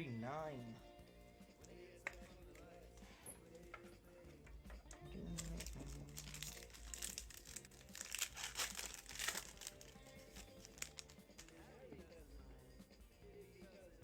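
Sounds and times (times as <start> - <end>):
foil wrapper tearing and crinkling: 5.2 - 11.6.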